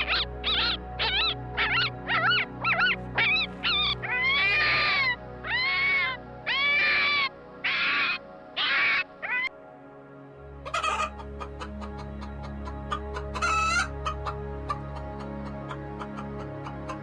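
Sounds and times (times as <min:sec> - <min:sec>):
music bed: 0:00.0 - 0:17.0.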